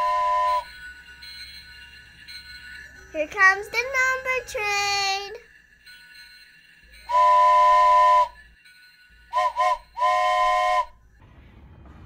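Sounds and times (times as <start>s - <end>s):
steam locomotive whistle: 0.0s - 0.7s, 7.1s - 8.4s, 9.3s - 11.0s.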